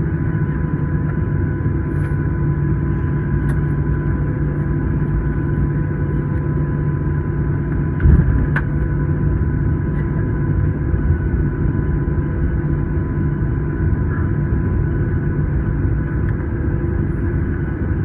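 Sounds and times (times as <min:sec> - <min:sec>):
aircraft cabin engine rumble: 0:00.0 - 0:18.0.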